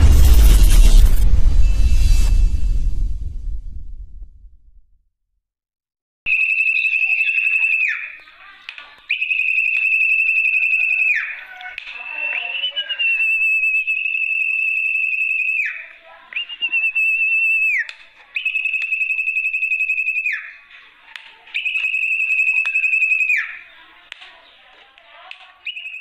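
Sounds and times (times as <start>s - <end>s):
bird trilled whistles: 6.3s - 8.3s, 9.1s - 20.6s, 21.5s - 23.6s, 25.6s - 26.0s.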